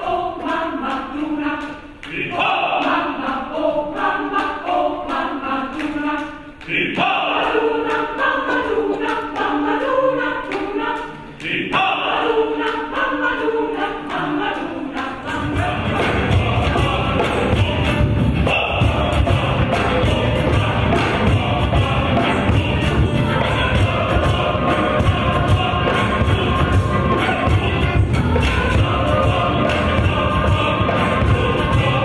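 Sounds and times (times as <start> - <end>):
voices singing together: 0.0 - 32.0
music with heavy low end: 15.4 - 32.0.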